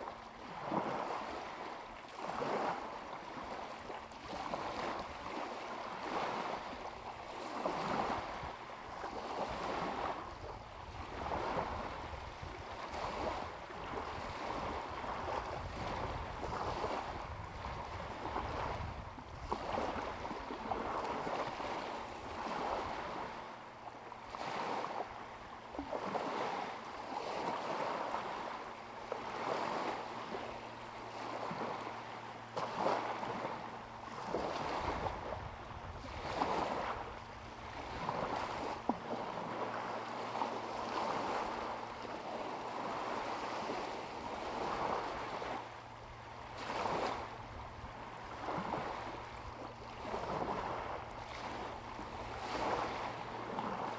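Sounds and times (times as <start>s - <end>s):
small waves lapping: 0.0s - 53.9s.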